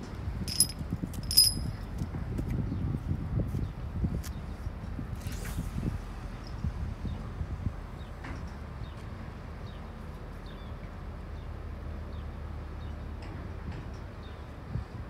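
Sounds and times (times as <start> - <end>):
steady low rumble: 0.0 - 3.0.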